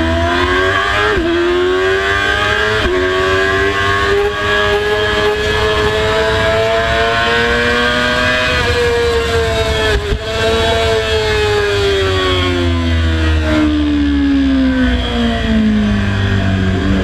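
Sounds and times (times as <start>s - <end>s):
race motorcycle engine accelerating: 0.0s - 17.0s.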